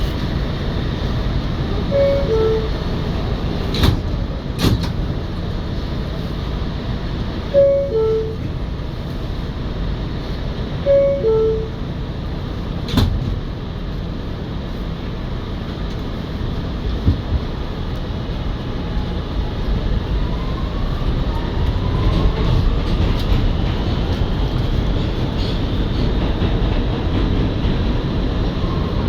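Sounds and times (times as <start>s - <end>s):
subway car hum: 0.0s - 29.0s
two-note door chime: 7.6s - 8.4s, 10.9s - 11.8s.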